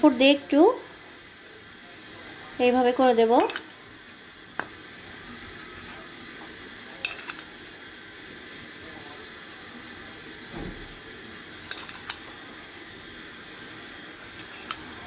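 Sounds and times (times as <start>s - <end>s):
steady hiss: 0.0s - 15.0s
spoon clinking against cup: 3.4s - 3.8s, 7.0s - 7.5s, 11.6s - 12.2s, 14.4s - 14.9s.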